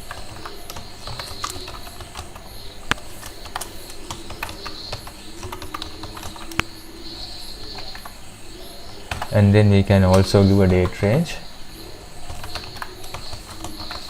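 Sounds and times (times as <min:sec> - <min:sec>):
computer keyboard typing: 0:00.0 - 0:02.5, 0:03.2 - 0:06.7, 0:12.3 - 0:14.0.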